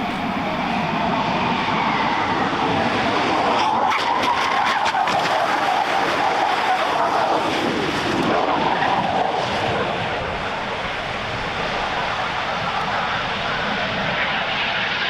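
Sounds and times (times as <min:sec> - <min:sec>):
car engine running loud: 0:00.0 - 0:15.0.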